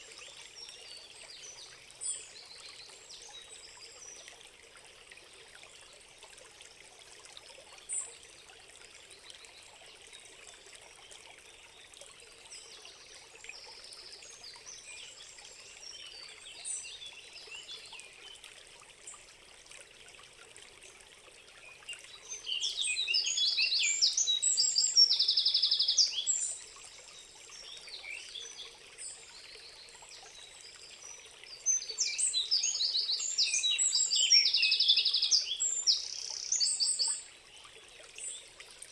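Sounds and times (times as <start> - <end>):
songbirds singing: 21.4 - 38.9.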